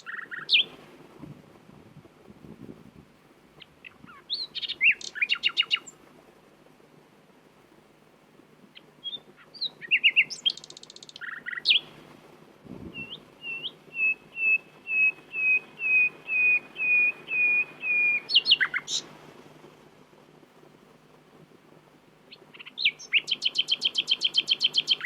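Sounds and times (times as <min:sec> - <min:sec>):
nightingale singing: 0:00.0 - 0:00.8, 0:03.6 - 0:06.0, 0:08.7 - 0:12.0, 0:12.9 - 0:19.1, 0:22.3 - 0:25.0.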